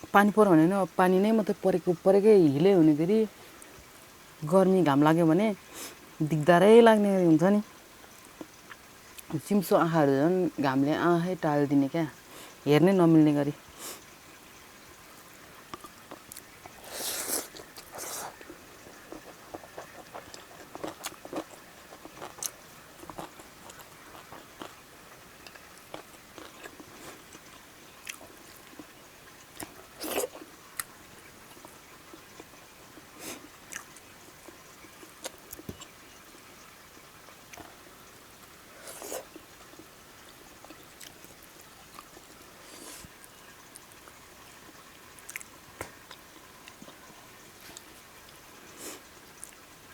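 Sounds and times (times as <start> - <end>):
slurps: 15.8 - 22.5
person chewing and biting: 15.8 - 24.8.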